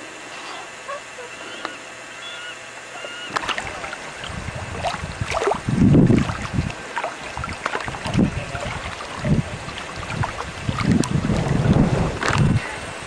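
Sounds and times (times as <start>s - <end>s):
canoe paddles splashing water: 3.4s - 12.6s
heavy low water rush: 3.4s - 13.0s.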